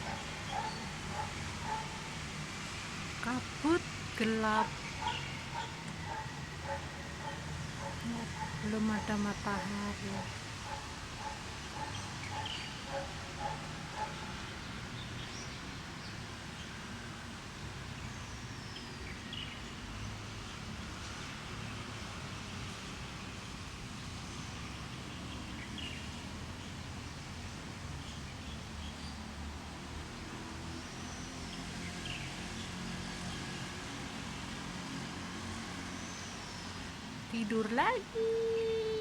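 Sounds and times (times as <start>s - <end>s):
birds calling and chirping: 0.0s - 2.3s, 4.2s - 16.7s.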